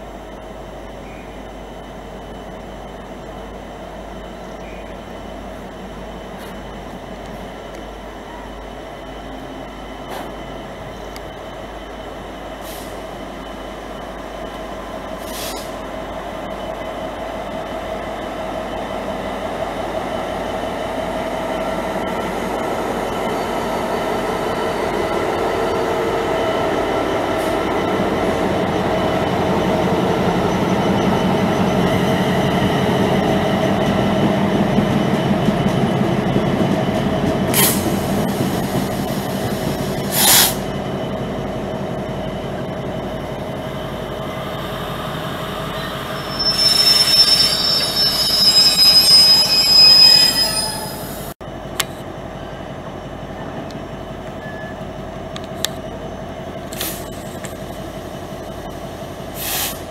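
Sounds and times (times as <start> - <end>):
diesel locomotive passing: 0.0 - 56.7
wagon wheels squealing: 45.6 - 51.4.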